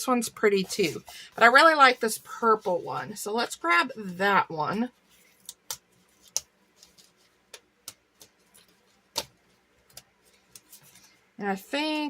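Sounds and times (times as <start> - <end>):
sticker sheet clicks and taps: 9.1 - 10.7.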